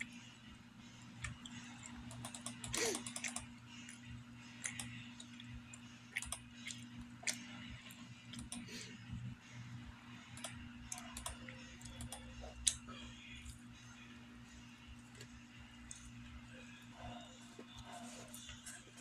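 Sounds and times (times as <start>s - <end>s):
chewing clicks and mouth smacks: 6.1s - 7.5s.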